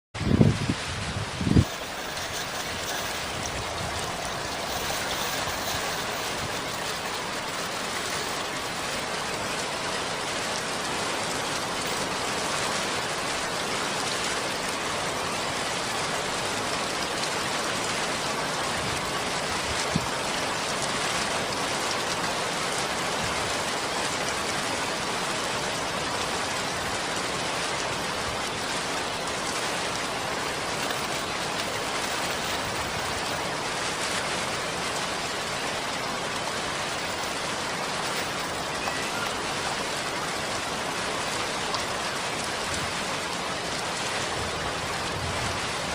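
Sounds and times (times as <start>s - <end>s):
rain hissing: 0.2s - 45.9s.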